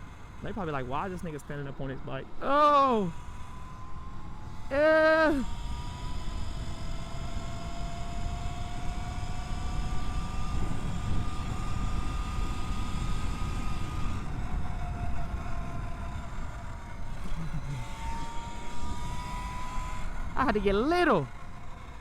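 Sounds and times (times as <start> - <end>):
electric motorbike motor whining: 0.0 - 22.0
wind rumble on microphone: 5.4 - 20.4.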